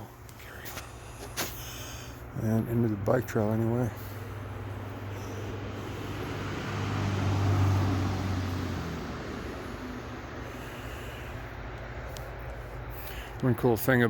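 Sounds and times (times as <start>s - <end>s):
vehicle passing on road: 3.7s - 13.7s.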